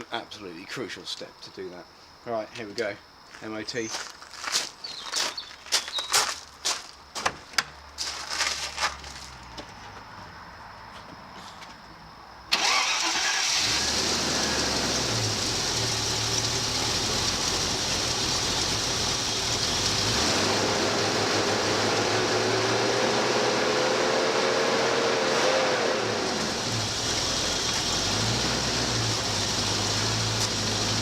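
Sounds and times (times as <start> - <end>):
car engine starting and running: 12.5 - 31.0.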